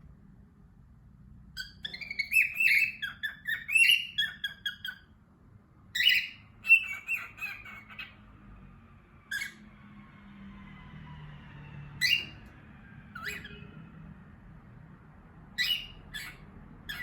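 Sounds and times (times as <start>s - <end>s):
birds chirping: 1.5s - 5.2s, 5.9s - 10.0s, 11.3s - 14.4s, 15.4s - 17.0s
loud bird call: 11.6s - 13.8s.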